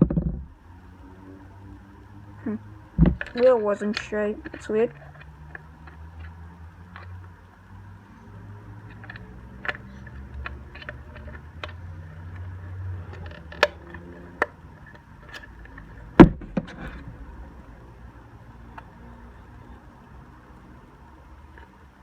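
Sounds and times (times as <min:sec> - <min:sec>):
plastic clicks and knocks: 0:00.0 - 0:00.5, 0:03.0 - 0:07.2, 0:08.9 - 0:17.2.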